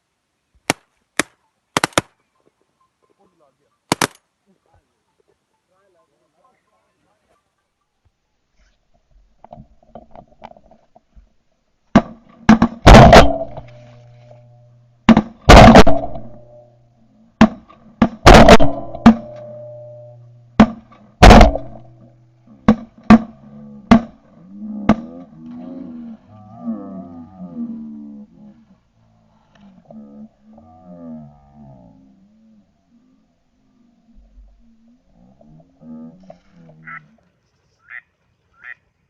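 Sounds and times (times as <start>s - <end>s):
shotgun shots: 0.7s - 2.2s, 3.9s - 4.2s, 12.5s - 13.8s, 15.1s - 16.4s, 17.4s - 19.6s, 20.6s - 21.9s.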